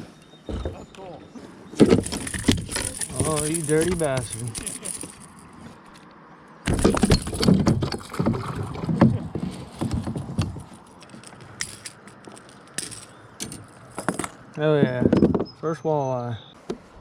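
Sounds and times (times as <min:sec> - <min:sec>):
knocking and clattering on kayak: 0:06.7 - 0:10.7.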